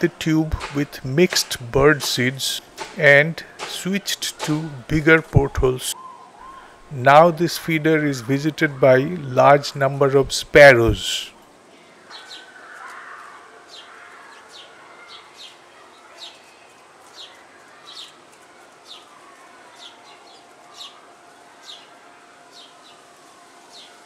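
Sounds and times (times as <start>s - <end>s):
small birds chirping: 11.8s - 24.0s.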